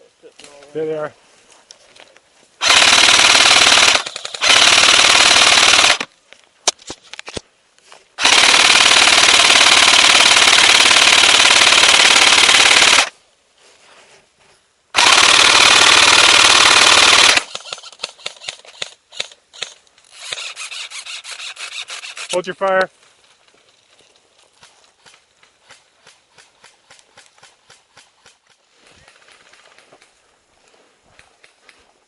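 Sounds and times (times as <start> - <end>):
airsoft guns full-auto firing: 2.6 - 6.1, 8.2 - 13.1, 15.0 - 22.3.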